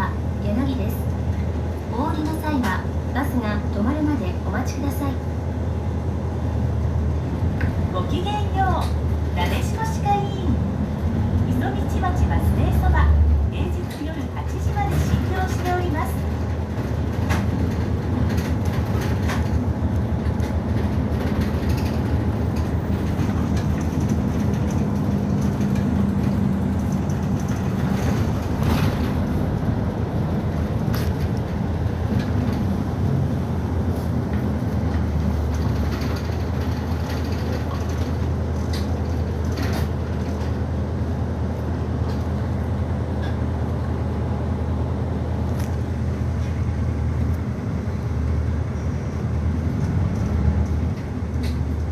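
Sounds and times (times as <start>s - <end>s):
bus engine hum: 0.0s - 51.9s
body rattles and clicks: 13.6s - 41.0s, 49.6s - 51.9s.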